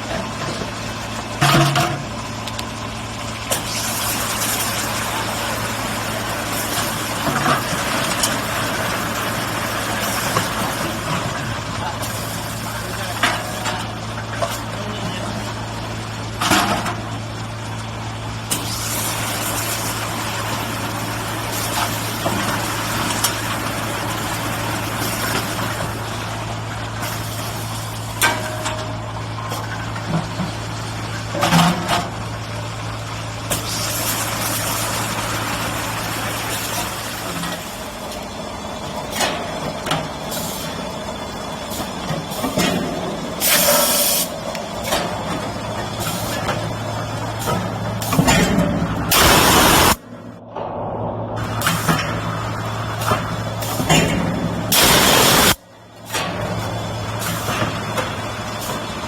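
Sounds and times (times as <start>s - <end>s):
motor hum: 49.0s - 55.6s
spray hiss: 49.1s - 50.0s, 54.7s - 55.6s.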